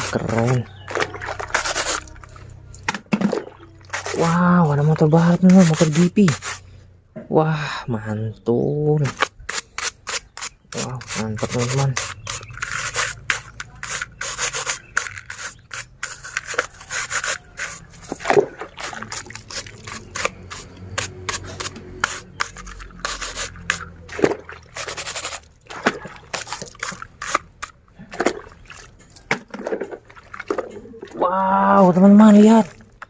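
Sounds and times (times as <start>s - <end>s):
brush scrubbing plastic toy: 0.0s - 2.4s, 3.8s - 6.6s, 9.0s - 25.5s, 26.2s - 27.7s.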